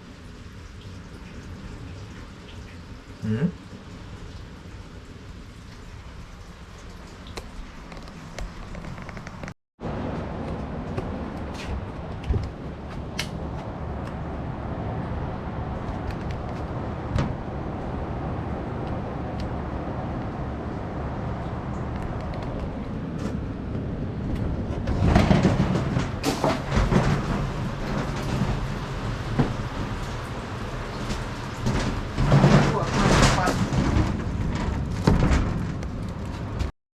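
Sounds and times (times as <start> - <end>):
rain and wind roaring: 0.0 - 36.7
knocks on wooden house: 31.8 - 35.7.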